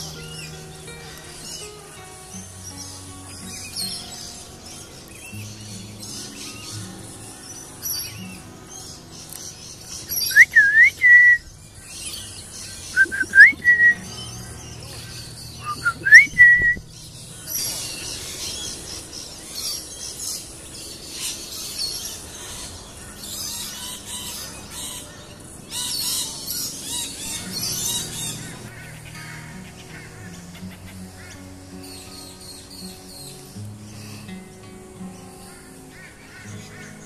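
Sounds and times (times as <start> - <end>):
high-pitched bird chatter: 0.0 - 37.0
bird whistling swooping phrases: 10.2 - 11.4, 12.9 - 14.0, 15.6 - 16.8.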